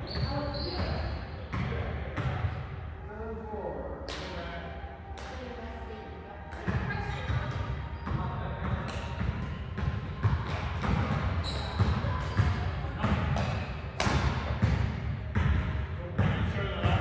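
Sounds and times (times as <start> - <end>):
racket hitting shuttlecock: 13.4 - 14.5.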